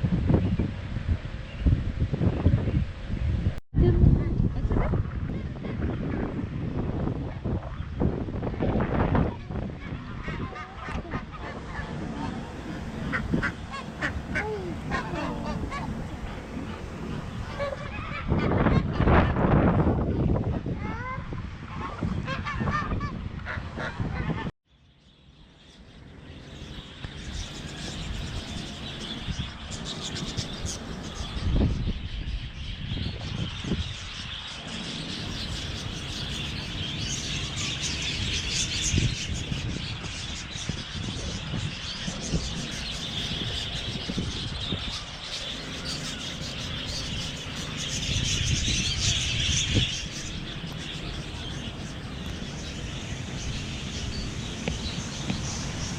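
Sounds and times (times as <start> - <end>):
small birds chirping: 9.1 - 18.8, 24.7 - 55.9
geese honking: 10.0 - 19.1.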